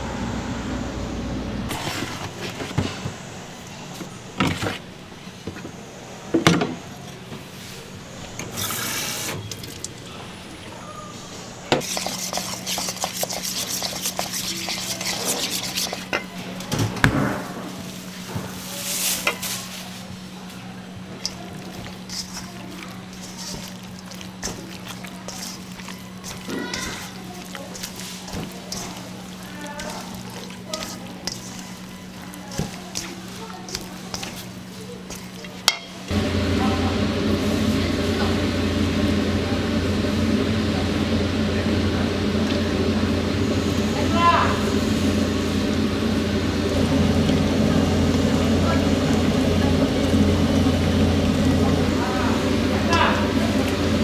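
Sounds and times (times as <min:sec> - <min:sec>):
rushing noise: 0:00.0 - 0:01.9
steady low hum: 0:00.0 - 0:03.9, 0:36.1 - 0:54.0
wet squishing and stirring: 0:11.8 - 0:16.7, 0:17.7 - 0:36.2, 0:37.3 - 0:54.0.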